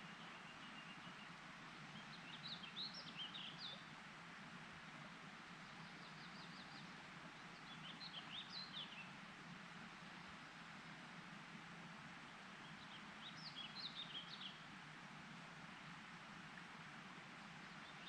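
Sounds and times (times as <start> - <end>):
songbird singing: 0.0 - 3.9, 5.6 - 9.2, 12.3 - 14.7, 17.6 - 18.0
steady background hiss: 0.0 - 18.0.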